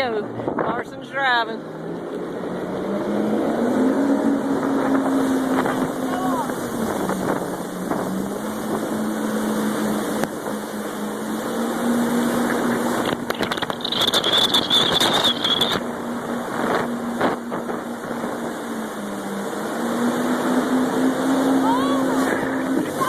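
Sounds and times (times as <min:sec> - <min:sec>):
jet ski engine running: 0:00.0 - 0:23.0
rushing water: 0:00.0 - 0:23.0
wind: 0:00.0 - 0:23.0
splashing: 0:01.8 - 0:23.0
high-pitched squeal: 0:13.7 - 0:15.8.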